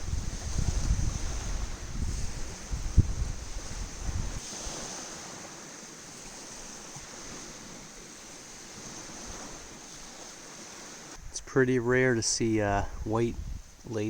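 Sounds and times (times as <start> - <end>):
surf on the shore: 0.0 - 14.0
wind buffeting microphone: 0.0 - 14.0.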